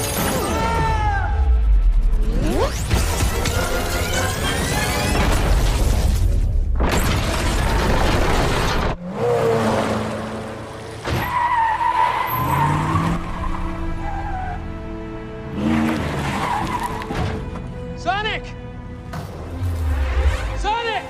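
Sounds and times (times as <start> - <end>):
film music score: 0.0 - 21.0
speeding vehicle: 7.5 - 17.8
tires skidding and squealing: 9.0 - 14.7, 15.4 - 17.6.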